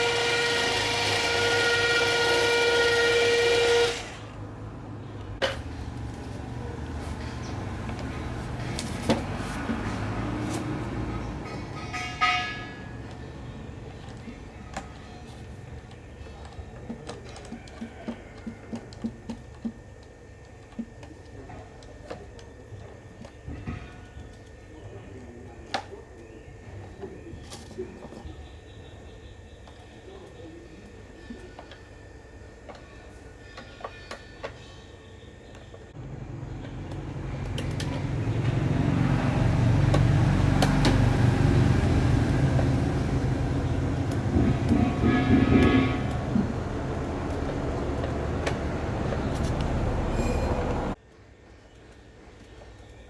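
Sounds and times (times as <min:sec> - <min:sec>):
heavy mechanical rumble: 0:35.9 - 0:51.0.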